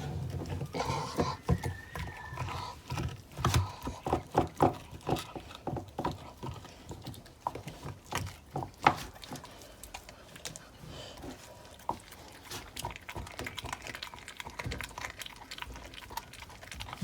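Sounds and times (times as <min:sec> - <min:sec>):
dog chewing a bone: 0:00.0 - 0:17.0
bone cracking and crunching: 0:12.3 - 0:17.0.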